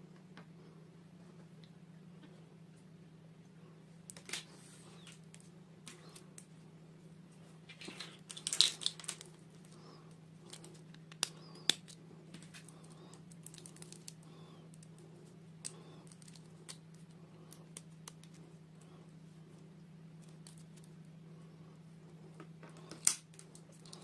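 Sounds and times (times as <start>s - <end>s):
steady low hum: 0.0s - 24.0s
packaging crinkling and rustling: 7.6s - 9.8s, 10.4s - 15.0s, 15.6s - 18.4s.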